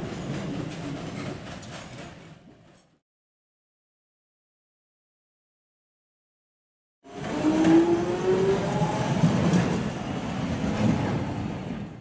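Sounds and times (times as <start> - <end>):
train wheels rumbling on rail: 0.0 - 3.0, 7.1 - 12.0
train whine: 7.1 - 11.9.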